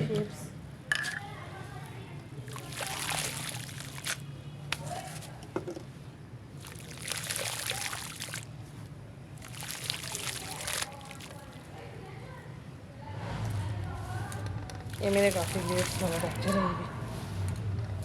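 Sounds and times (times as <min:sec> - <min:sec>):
water pouring and splashing: 0:02.4 - 0:05.3, 0:06.5 - 0:11.8, 0:14.2 - 0:16.6.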